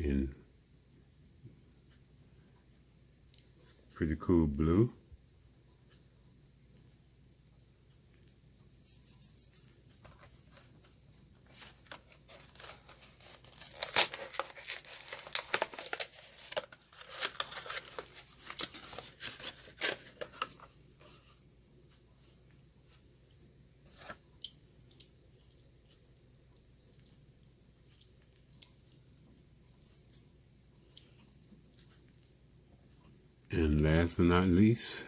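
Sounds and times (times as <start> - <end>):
cardboard and plastic ripping: 11.6 - 20.6.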